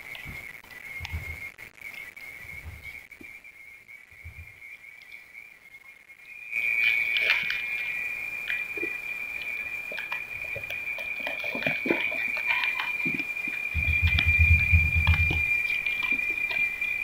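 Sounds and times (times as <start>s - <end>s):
burning coir whistling: 0.0s - 17.0s
faint crackles: 0.0s - 17.0s
soft low thuds: 1.0s - 1.4s, 13.7s - 15.6s.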